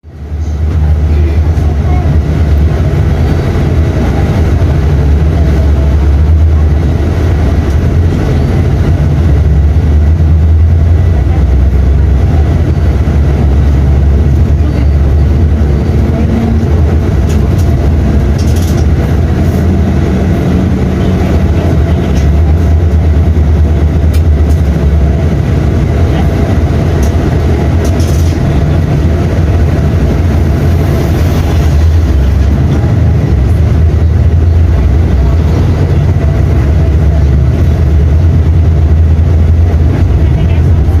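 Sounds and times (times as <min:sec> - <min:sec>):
bus diesel engine rumble: 0:00.0 - 0:41.0.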